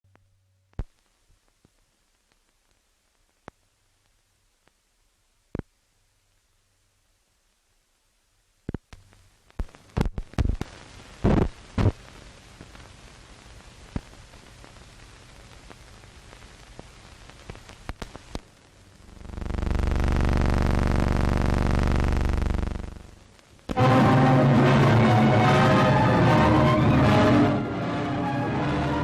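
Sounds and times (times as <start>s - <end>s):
film soundtrack hiss: 0.0s - 29.0s
pops and crackles: 0.1s - 4.8s, 5.5s - 5.7s, 8.6s - 23.8s
loud steady buzz: 19.0s - 26.1s.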